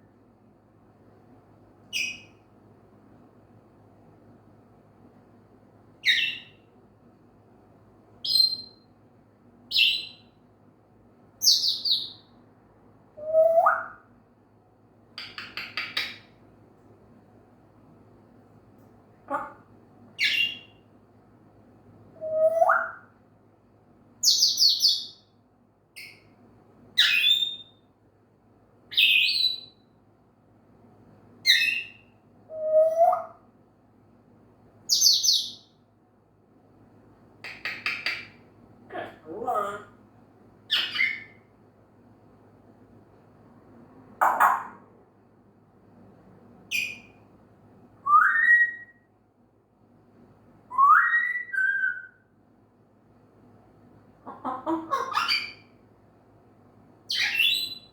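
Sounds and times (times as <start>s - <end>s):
parrot chirping whistles: 1.9s - 2.3s, 6.0s - 6.6s, 8.2s - 8.8s, 9.8s - 10.2s, 13.2s - 14.0s, 20.2s - 20.7s, 22.2s - 23.1s, 27.0s - 27.8s, 28.9s - 29.8s, 31.5s - 33.4s, 40.7s - 41.4s, 46.7s - 47.2s, 48.0s - 49.1s, 50.7s - 52.2s, 55.1s - 55.7s, 57.1s - 57.9s.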